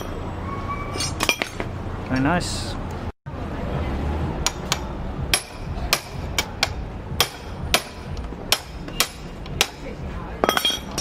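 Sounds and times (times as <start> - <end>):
hammer striking metal tool: 4.4 - 11.0.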